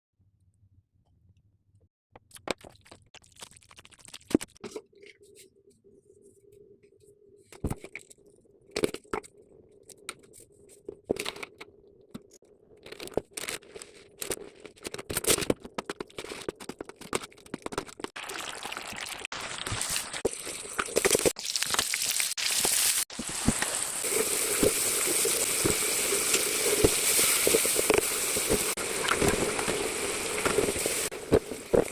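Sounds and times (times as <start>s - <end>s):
food frying in hot oil: 18.2s - 31.9s.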